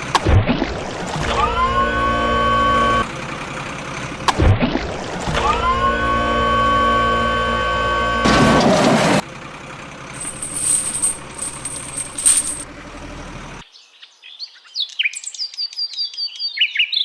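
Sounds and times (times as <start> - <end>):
light high clinking: 10.2 - 12.6.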